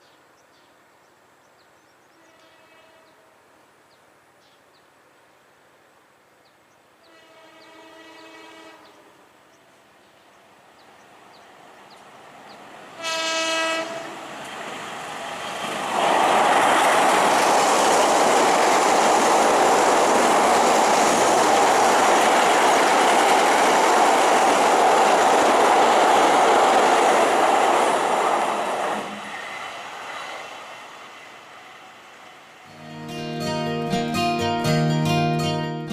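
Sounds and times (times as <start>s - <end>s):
train horn blast: 2.2s - 3.3s, 7.0s - 9.2s, 13.0s - 14.2s
train wheels on rails: 10.7s - 32.7s.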